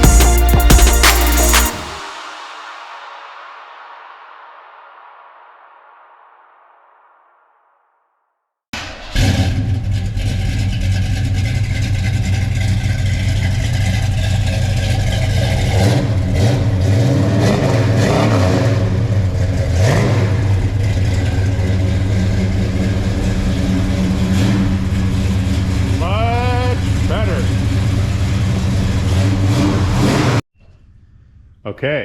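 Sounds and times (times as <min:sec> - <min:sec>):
engine throttle blips: 0:08.8 - 0:31.7
deep engine exhaust note: 0:09.1 - 0:31.7.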